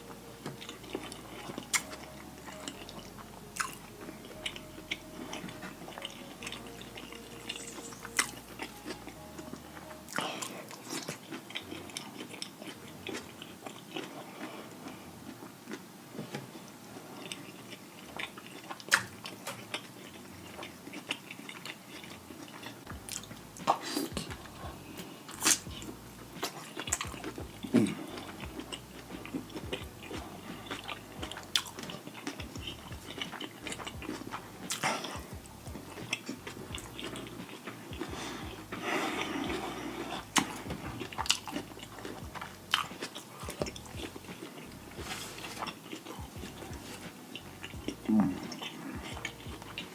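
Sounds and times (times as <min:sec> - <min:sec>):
wet chewing and biting: 0:00.0 - 0:49.9
mouth clicks and smacks: 0:17.2 - 0:19.8, 0:20.5 - 0:49.9.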